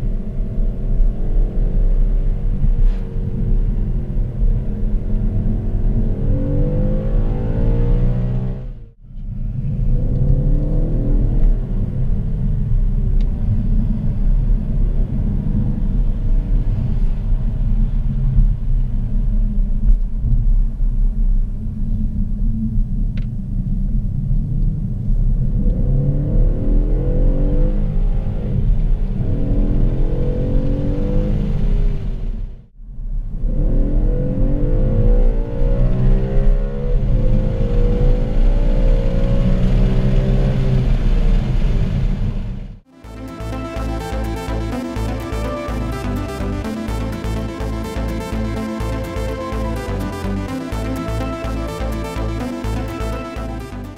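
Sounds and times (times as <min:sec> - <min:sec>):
car engine low rumble: 0:00.0 - 0:53.9.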